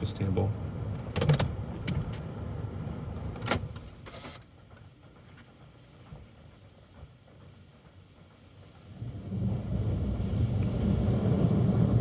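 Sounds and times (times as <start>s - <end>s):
car rumble from inside cabin: 0.0s - 4.0s, 8.9s - 12.0s.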